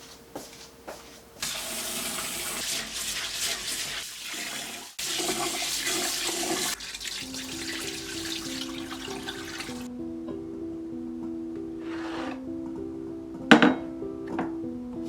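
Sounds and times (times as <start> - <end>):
water running from a tap: 1.4 - 9.9
soft music: 6.2 - 15.0.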